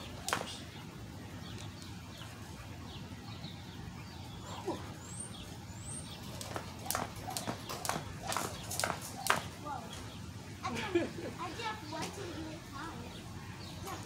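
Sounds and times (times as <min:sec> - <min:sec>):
low outdoor hum: 0:00.0 - 0:14.0
jump rope slapping pavement: 0:00.1 - 0:00.6, 0:06.2 - 0:09.6.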